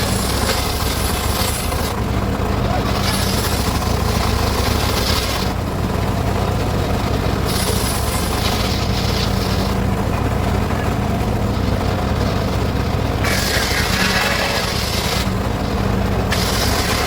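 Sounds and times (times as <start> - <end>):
circular saw cutting wood: 0.0 - 2.0, 2.8 - 5.6, 7.4 - 9.8, 13.2 - 15.6, 16.2 - 17.0.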